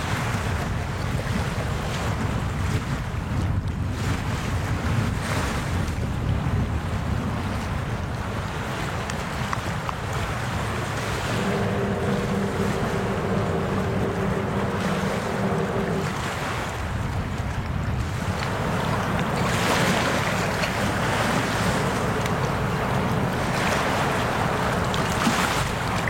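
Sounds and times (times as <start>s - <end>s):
water noise: 0.0s - 26.0s
wind: 0.0s - 26.0s
steady low hum: 10.6s - 26.0s.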